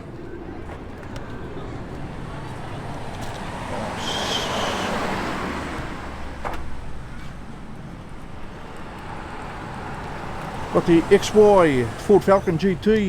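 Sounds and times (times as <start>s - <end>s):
road vehicle driving past: 0.0s - 13.0s
high squeal: 4.0s - 5.4s.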